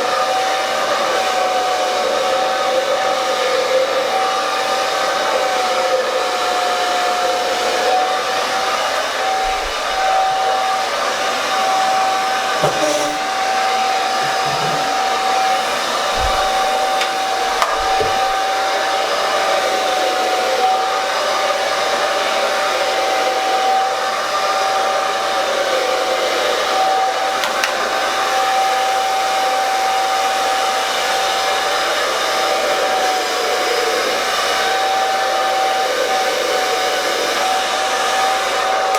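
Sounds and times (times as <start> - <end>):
hair dryer blowing: 0.0 - 38.9
faint knocks: 12.6 - 13.4, 14.2 - 15.3, 16.1 - 18.4.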